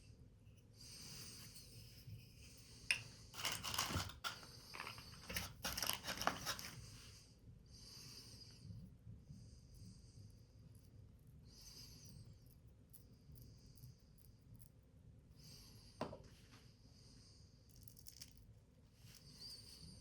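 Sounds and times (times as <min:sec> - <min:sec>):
paper rustling and crinkling: 0:03.4 - 0:06.8.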